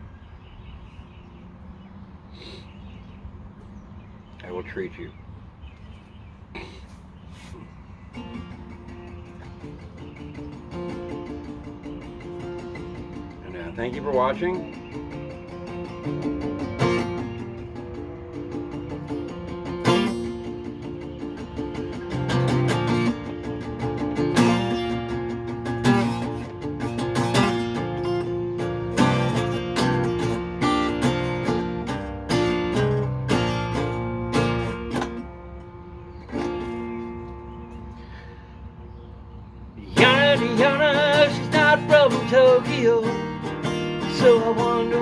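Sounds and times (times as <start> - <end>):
acoustic guitar strummed chords: 8.1 - 38.0, 39.9 - 45.0.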